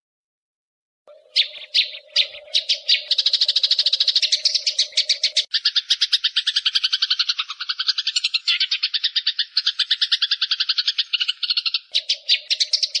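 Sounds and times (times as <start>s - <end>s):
sparrows chattering harshly: 1.1s - 13.0s.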